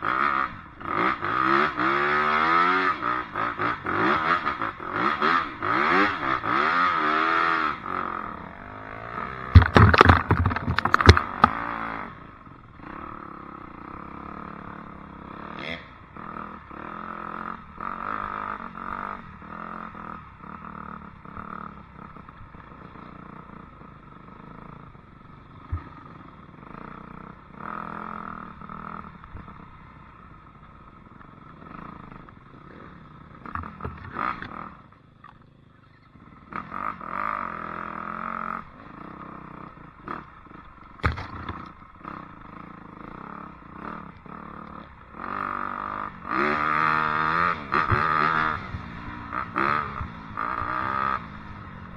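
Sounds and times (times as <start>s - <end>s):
loud knocks and clatter: 9.6s - 11.5s
dirt bike engine: 9.6s - 11.6s.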